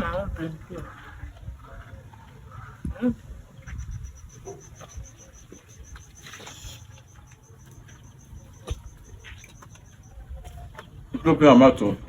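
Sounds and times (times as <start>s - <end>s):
high insect chirp pulsing: 3.5s - 10.6s.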